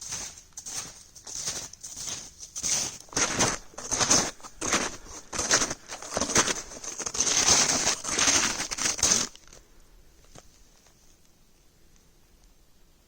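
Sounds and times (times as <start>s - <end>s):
footsteps crunching through snow: 0.0s - 9.6s.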